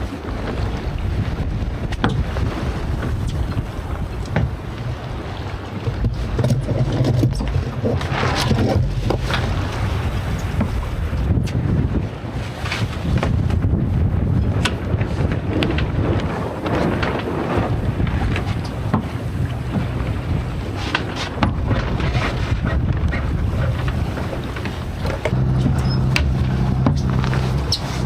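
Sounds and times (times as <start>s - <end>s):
wind buffeting microphone: 0.0s - 28.0s
boat gear clicks and knocks: 1.8s - 2.4s, 3.0s - 4.7s, 5.8s - 9.6s, 10.3s - 11.6s, 14.4s - 28.0s.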